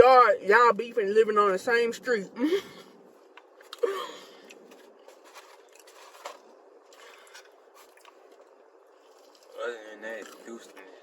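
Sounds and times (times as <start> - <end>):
crunching and chewing: 3.2 - 11.0.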